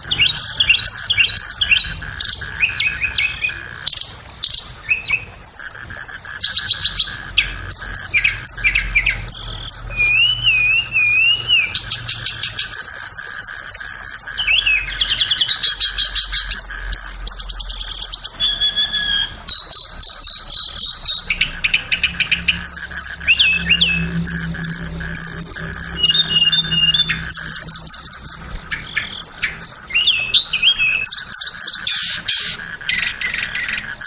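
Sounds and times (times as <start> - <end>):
bird chirps and trills: 0.0 - 34.0
wavering whistled phrase: 9.9 - 11.8.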